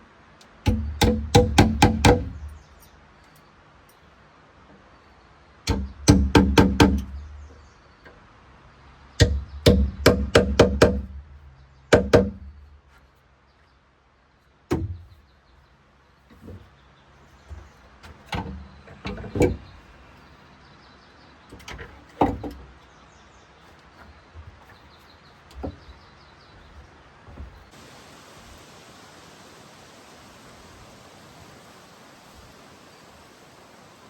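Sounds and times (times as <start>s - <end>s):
sharp ringing knocks: 0.7s - 2.7s, 5.7s - 7.2s.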